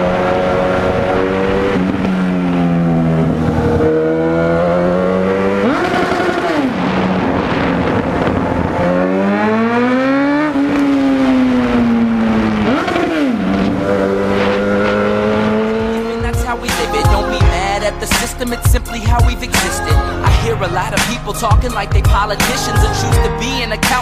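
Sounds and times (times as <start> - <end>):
motorcycle engine revving: 0.0 - 16.8.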